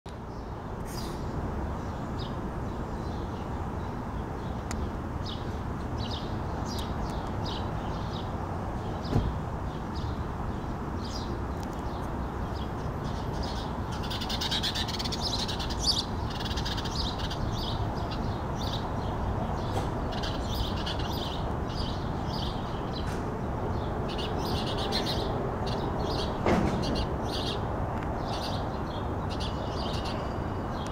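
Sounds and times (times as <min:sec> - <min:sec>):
birds chirping: 0:00.3 - 0:30.9.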